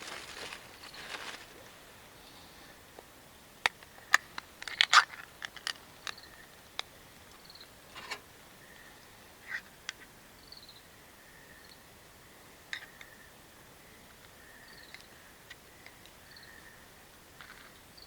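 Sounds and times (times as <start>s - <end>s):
small objects clicking and knocking: 3.7s - 6.2s.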